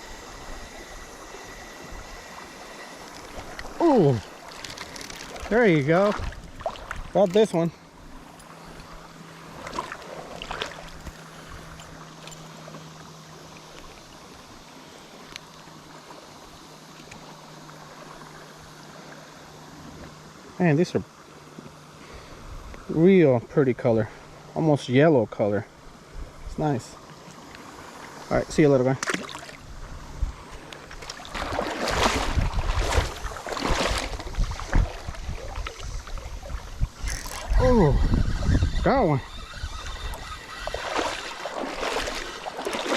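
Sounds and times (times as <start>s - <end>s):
flowing river water: 0.0s - 42.9s
paddle strokes splashing in water: 8.8s - 11.7s, 30.5s - 37.6s, 39.4s - 42.9s.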